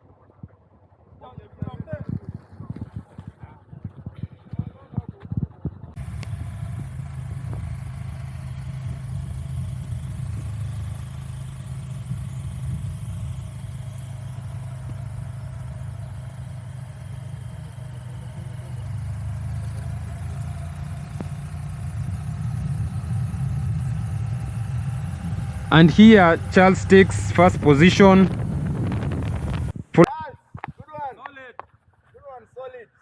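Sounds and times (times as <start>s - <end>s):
vehicle engine running: 6.0s - 29.8s.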